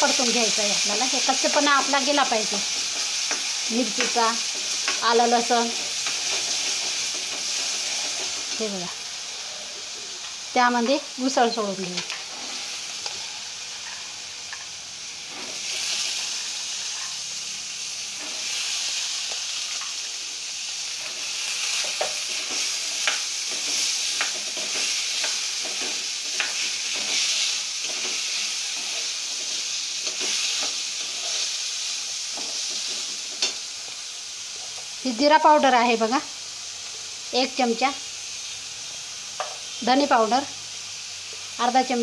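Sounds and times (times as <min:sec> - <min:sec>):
peas sizzling in hot oil: 0:00.0 - 0:42.0
spatula scraping and tapping pan: 0:02.7 - 0:08.7, 0:13.8 - 0:14.7, 0:21.8 - 0:31.5, 0:32.3 - 0:33.6.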